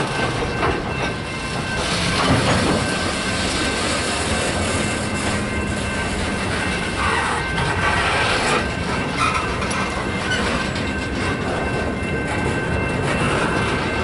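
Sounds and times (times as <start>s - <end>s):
train wheels rumbling and clicking: 0.0s - 14.0s.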